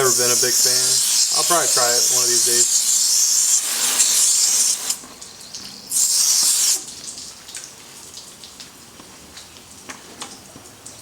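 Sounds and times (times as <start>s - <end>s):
running water rinsing fish: 0.0s - 8.6s.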